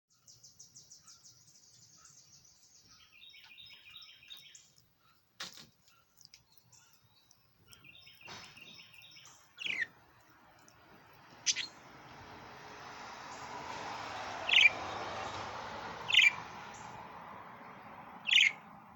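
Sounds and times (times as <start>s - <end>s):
bird chirping: 0.1s - 12.4s, 13.2s - 15.4s, 16.0s - 17.0s, 17.7s - 18.9s
sharp bird calls: 5.9s - 11.9s, 14.4s - 15.0s, 16.0s - 17.0s, 18.2s - 18.7s.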